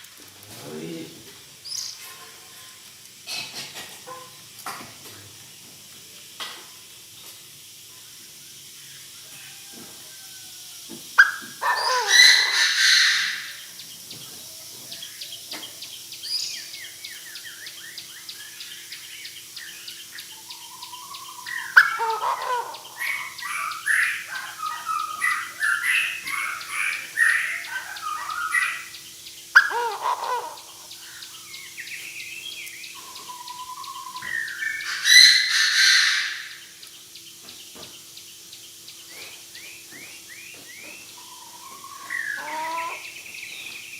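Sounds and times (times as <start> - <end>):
faint steady hum: 0.0 - 43.9
francolin calling: 7.6 - 43.9
chattering bird calls: 10.8 - 43.9.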